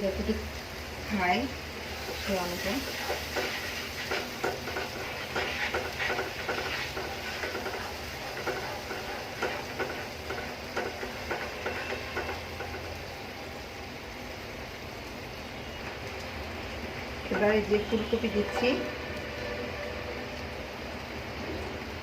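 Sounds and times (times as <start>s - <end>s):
spoon scraping in a pot: 2.9s - 12.8s.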